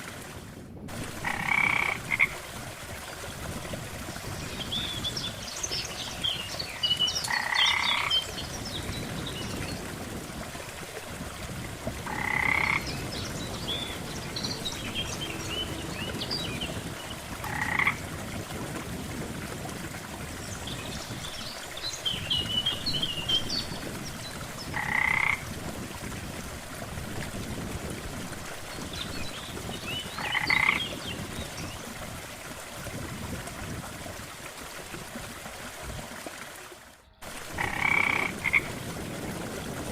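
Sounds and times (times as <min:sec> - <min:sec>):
frogs croaking: 0:01.1 - 0:02.4, 0:07.2 - 0:08.2, 0:12.0 - 0:18.1, 0:24.7 - 0:25.4, 0:30.2 - 0:30.8, 0:37.2 - 0:38.7.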